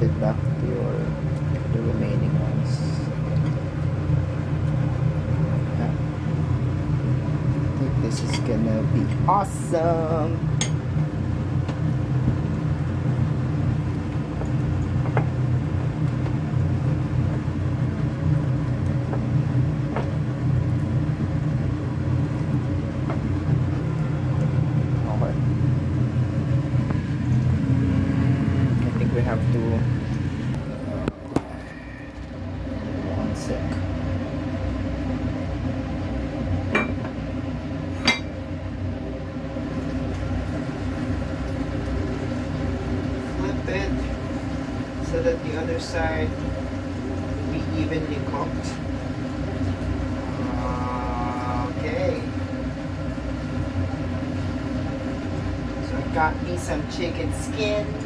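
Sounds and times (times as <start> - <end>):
low motor hum: 0.0 - 58.0
utensil clinking on dishes: 36.7 - 37.1.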